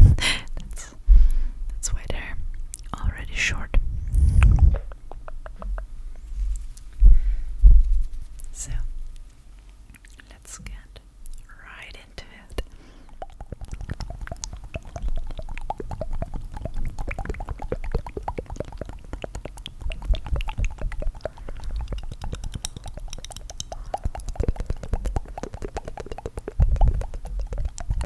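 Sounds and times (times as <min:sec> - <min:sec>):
low bassy thumps: 0:00.0 - 0:00.4, 0:01.0 - 0:01.9, 0:03.0 - 0:08.8
wet tongue fluttering: 0:04.0 - 0:07.0, 0:12.6 - 0:28.0.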